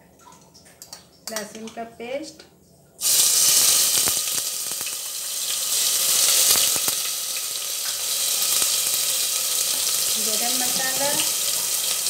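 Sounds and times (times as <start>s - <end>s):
paste sizzling in hot oil: 3.0s - 12.0s
sharp pops and crackles: 3.2s - 5.1s, 6.2s - 7.1s.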